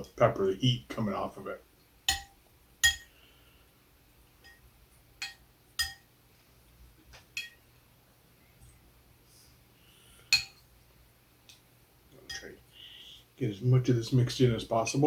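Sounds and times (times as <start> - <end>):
spoon clinking against a bowl: 2.1 - 3.1, 4.4 - 4.6, 5.2 - 6.1, 7.4 - 7.6, 10.3 - 10.6.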